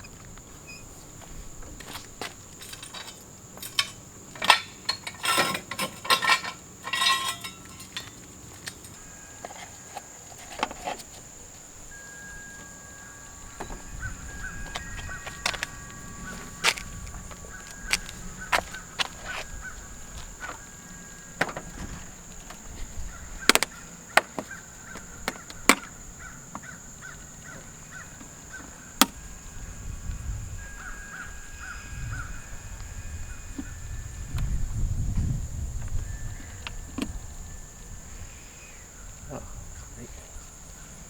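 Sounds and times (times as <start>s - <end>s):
high insect drone: 0.0s - 41.0s
tools clicking and knocking: 2.6s - 8.9s.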